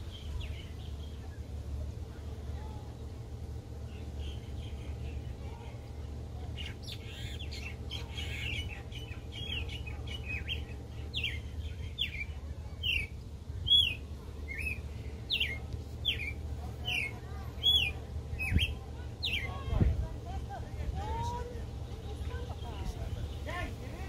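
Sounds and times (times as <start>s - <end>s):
bird chirping: 3.8s - 19.8s.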